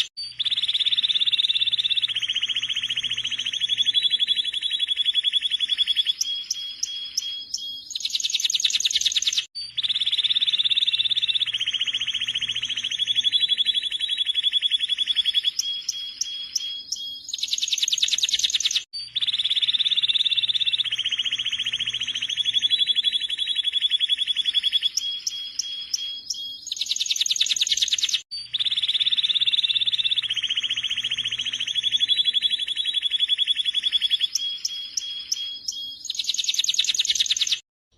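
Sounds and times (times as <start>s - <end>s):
canary singing trills: 0.0s - 37.6s.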